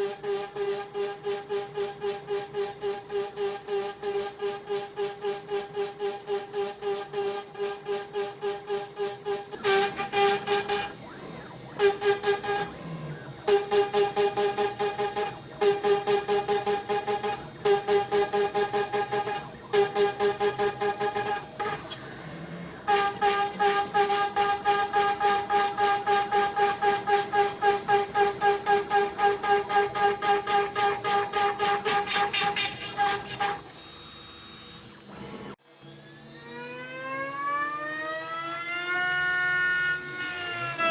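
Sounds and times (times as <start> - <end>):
router cutting wood whine: 0.0 - 40.9.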